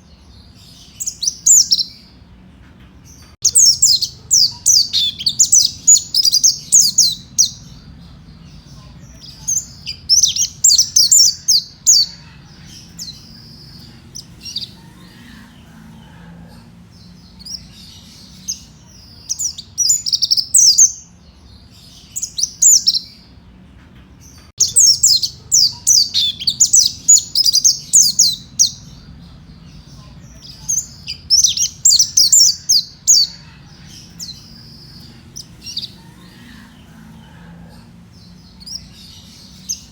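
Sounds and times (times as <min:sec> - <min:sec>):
faint low hum: 0:00.0 - 0:39.9
bird twittering: 0:03.4 - 0:21.1, 0:24.6 - 0:37.1.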